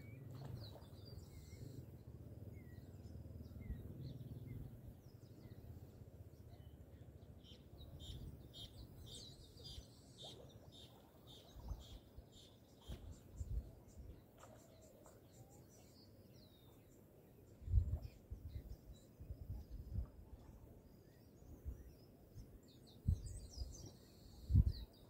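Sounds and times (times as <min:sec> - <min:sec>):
low outdoor rumble: 0:00.0 - 0:09.5
birds chirping: 0:00.0 - 0:20.0.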